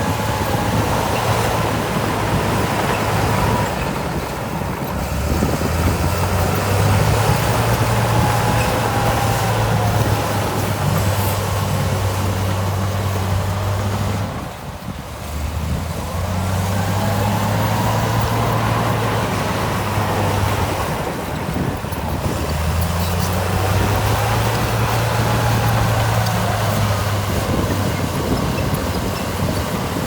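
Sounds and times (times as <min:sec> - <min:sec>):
heavy diesel engine running: 0:00.0 - 0:30.0.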